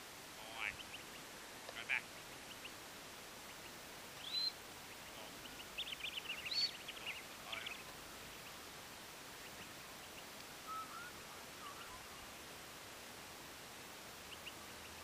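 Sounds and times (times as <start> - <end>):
birds calling: 0.0 - 12.6, 14.0 - 15.0
faint steady hiss: 0.0 - 15.0
bird chirps: 0.5 - 2.8, 3.4 - 8.6, 9.4 - 12.4.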